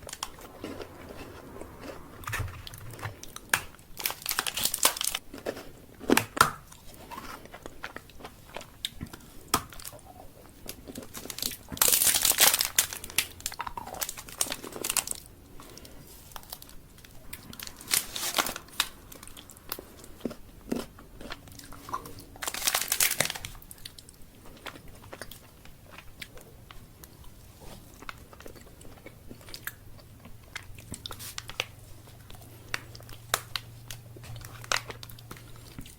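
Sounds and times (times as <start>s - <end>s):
crunching bites: 0.0s - 7.7s
quiet chewing: 0.0s - 35.9s
wrapper crinkling: 3.2s - 5.2s, 11.0s - 15.3s, 17.4s - 19.5s, 22.4s - 23.7s.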